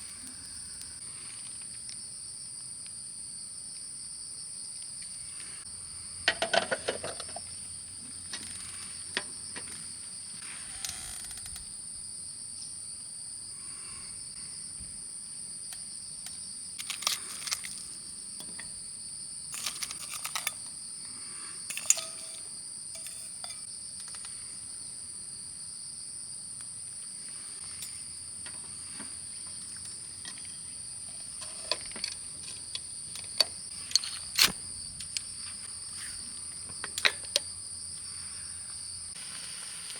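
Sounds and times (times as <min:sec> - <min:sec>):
crickets chorus: 0:00.0 - 0:39.9
cookware clinking: 0:21.7 - 0:23.6.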